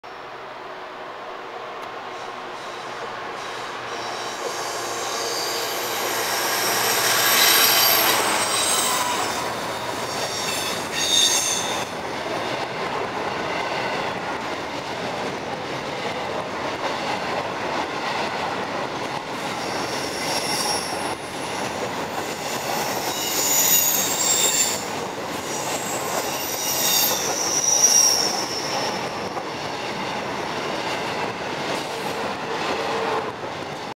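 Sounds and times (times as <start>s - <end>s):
train wheels on rails: 1.4s - 34.0s
wheels squealing: 3.4s - 11.9s, 22.2s - 29.1s.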